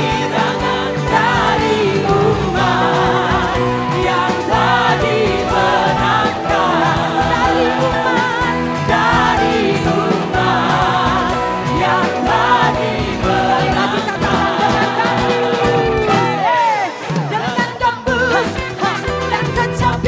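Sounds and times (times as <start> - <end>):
people singing: 0.0 - 20.0
worship band playing: 0.0 - 20.0.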